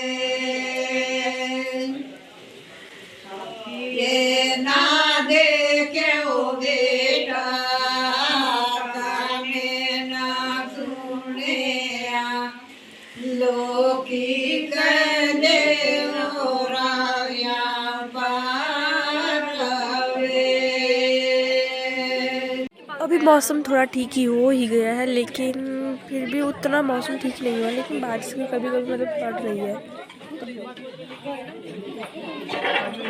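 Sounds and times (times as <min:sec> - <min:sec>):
person singing unaccompanied: 0:03.5 - 0:29.8.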